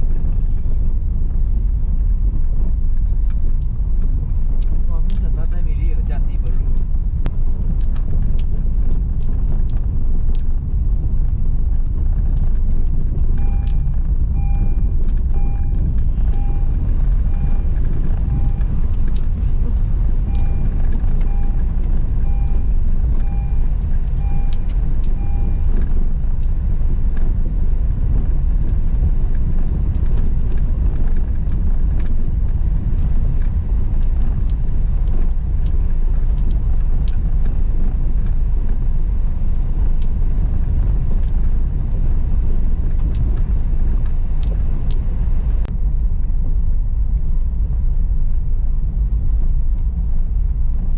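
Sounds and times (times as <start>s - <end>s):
car engine and tyres rumbling: 0.0s - 50.9s
car warning chime beeping: 13.4s - 25.9s.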